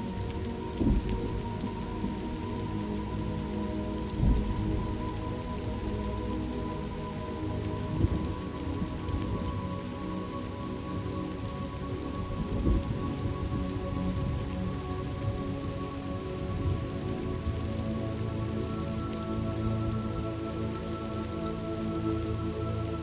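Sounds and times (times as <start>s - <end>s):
ambient music drone: 0.0s - 23.0s
steady rain falling: 0.0s - 23.0s
low thunder rumbles: 0.3s - 2.6s, 4.0s - 5.9s.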